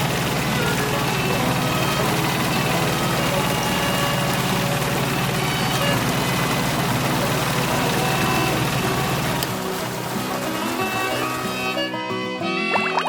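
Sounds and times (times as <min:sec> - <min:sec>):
tractor engine idling: 0:00.0 - 0:12.8.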